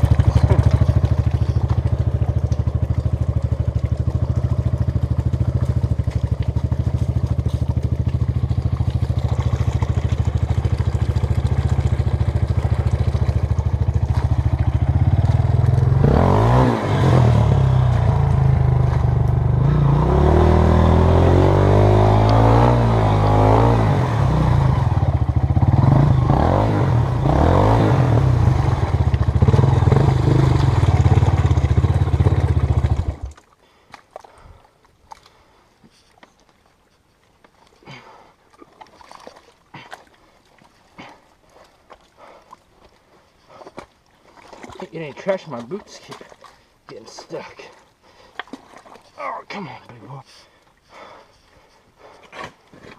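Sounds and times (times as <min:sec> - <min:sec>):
dirt bike engine revving: 0:00.0 - 0:33.3.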